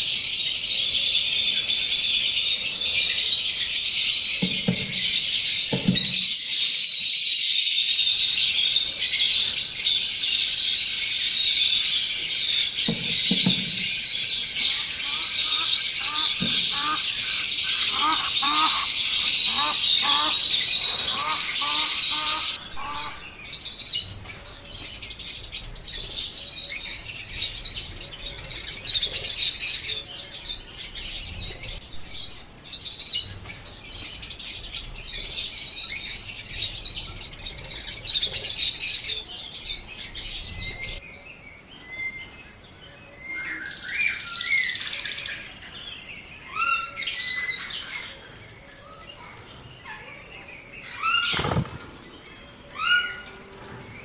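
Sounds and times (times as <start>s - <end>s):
birds twittering: 0.0s - 54.0s
rising bird chirps: 12.0s - 24.2s.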